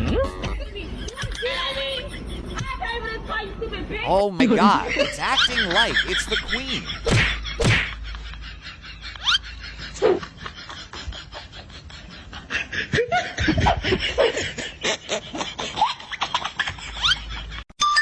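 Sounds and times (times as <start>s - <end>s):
people laughing: 0.7s - 3.1s, 4.4s - 17.6s.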